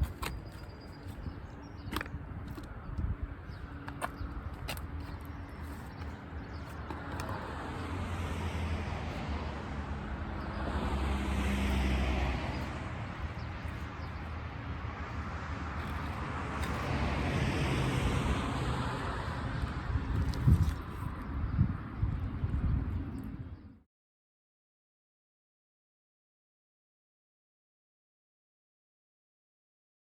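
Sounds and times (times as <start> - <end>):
vehicles driving past: 0.0 - 23.8.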